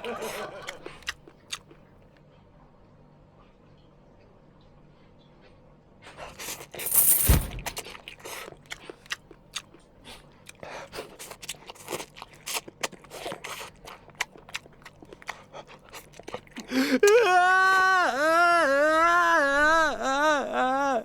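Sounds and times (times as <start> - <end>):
heavy thump: 6.8 - 7.9.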